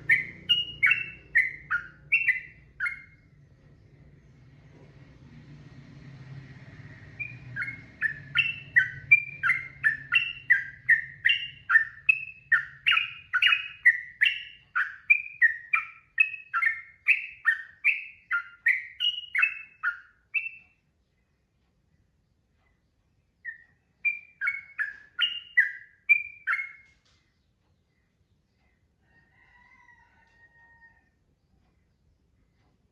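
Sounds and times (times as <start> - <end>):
bulbul singing: 0.0 - 3.4, 6.8 - 21.3, 22.7 - 28.8.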